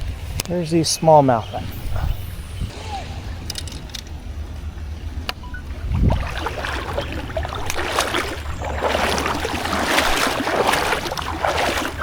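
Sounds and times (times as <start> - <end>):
steady low rumble: 0.0 - 12.0
creek water splashing around canoe: 5.1 - 12.0.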